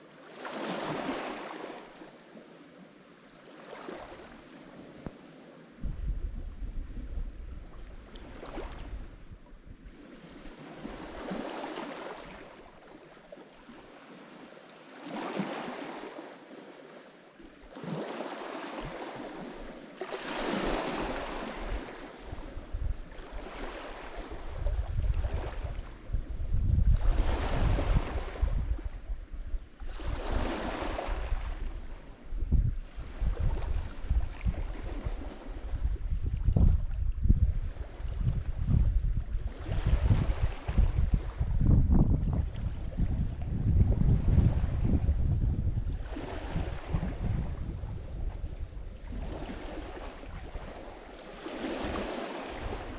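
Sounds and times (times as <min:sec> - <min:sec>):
waves washing up shore: 0:00.0 - 0:02.3, 0:03.4 - 0:36.8, 0:37.6 - 0:41.6, 0:42.3 - 0:52.9
wind buffeting microphone: 0:05.8 - 0:11.5, 0:20.3 - 0:52.9.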